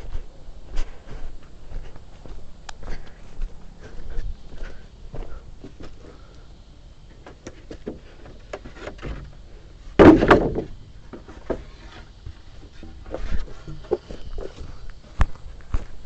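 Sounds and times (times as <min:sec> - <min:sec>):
loud wooden clatter: 0:10.0 - 0:11.7.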